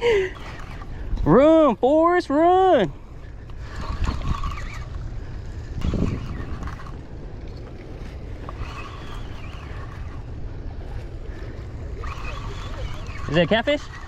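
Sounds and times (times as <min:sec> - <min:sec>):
wind rumbling on microphone: 0:02.8 - 0:14.0.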